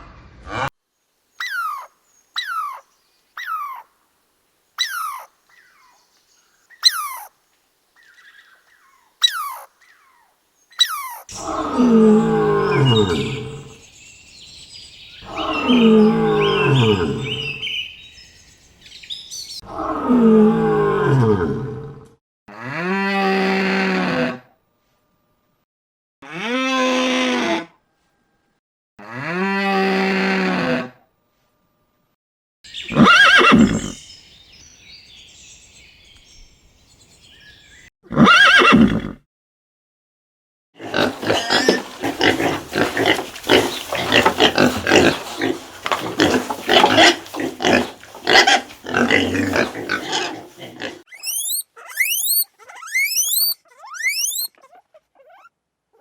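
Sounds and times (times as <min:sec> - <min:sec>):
animal calls: 0:01.4 - 0:03.9, 0:04.8 - 0:06.0, 0:06.7 - 0:07.4, 0:08.0 - 0:20.0, 0:32.7 - 0:34.1, 0:40.8 - 0:56.0.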